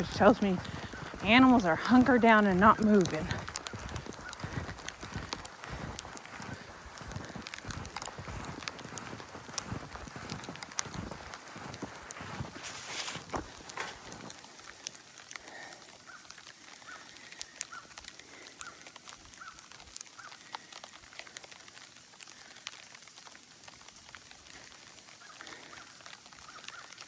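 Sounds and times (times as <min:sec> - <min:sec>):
footsteps crunching in snow: 0:00.0 - 0:15.4
light ticks: 0:00.0 - 0:27.0.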